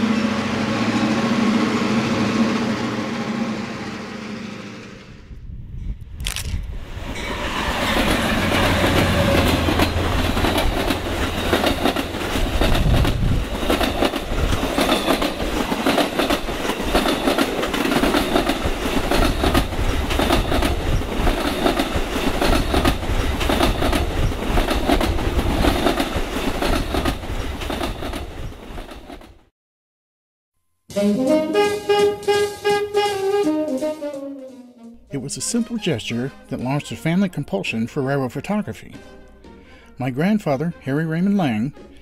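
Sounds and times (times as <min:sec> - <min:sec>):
train rumble: 0:00.0 - 0:29.4
train wheels clattering over joints: 0:07.3 - 0:29.4.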